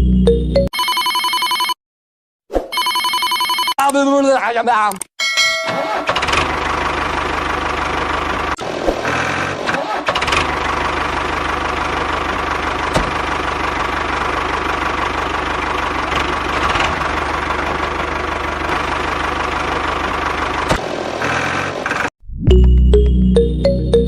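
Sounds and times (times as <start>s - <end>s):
tractor motor chugging: 5.8s - 22.1s.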